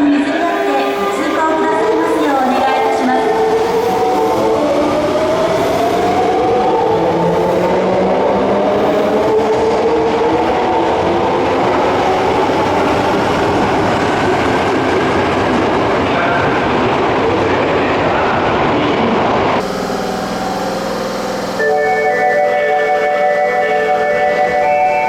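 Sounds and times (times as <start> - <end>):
subway train wheels rumbling: 0.0 - 25.0
train motor whine: 19.6 - 25.0.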